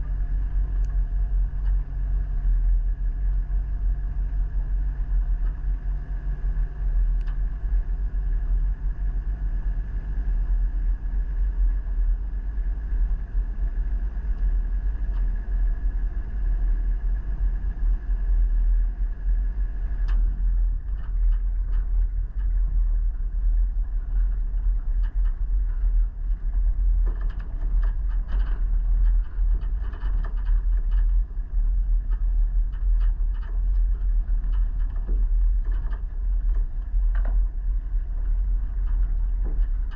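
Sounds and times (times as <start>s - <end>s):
vehicle engine and road rumble: 0.0s - 39.9s
light knocks and rattles: 24.2s - 39.9s.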